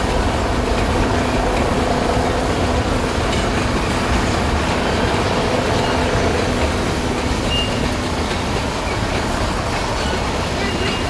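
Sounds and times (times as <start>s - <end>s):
freight train wheels on rail: 0.0s - 11.0s.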